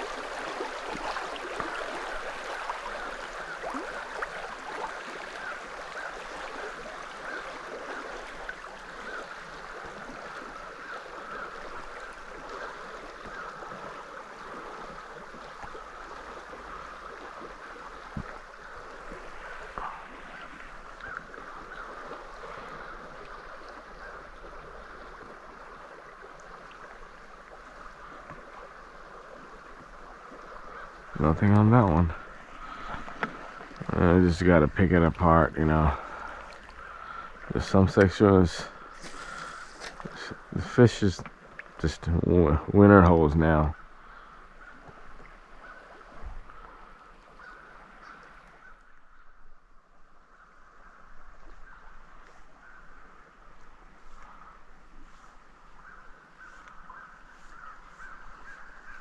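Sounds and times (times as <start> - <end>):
river running over rocks: 0.0 - 10.6.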